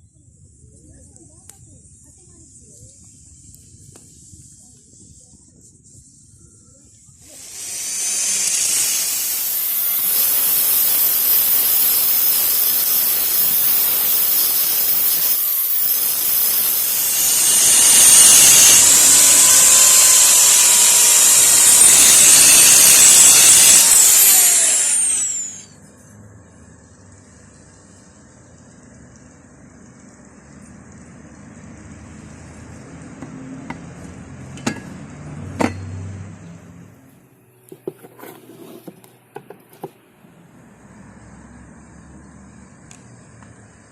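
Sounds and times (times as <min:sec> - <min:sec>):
electric grinder grinding steel: 0:07.3 - 0:25.8.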